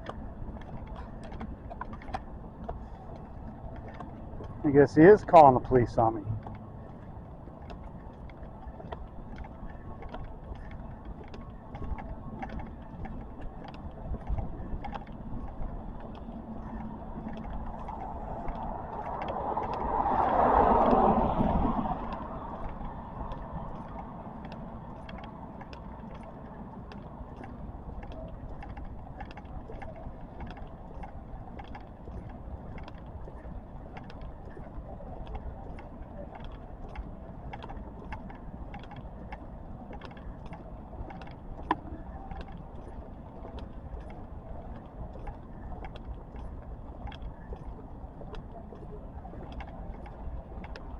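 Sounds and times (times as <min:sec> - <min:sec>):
traffic background: 0:00.0 - 0:50.9
vehicle passing by: 0:17.9 - 0:23.2.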